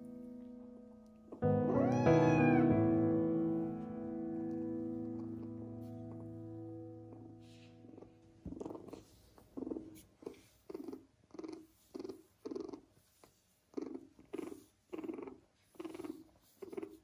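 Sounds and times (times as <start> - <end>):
kitten purring: 7.1 - 17.0.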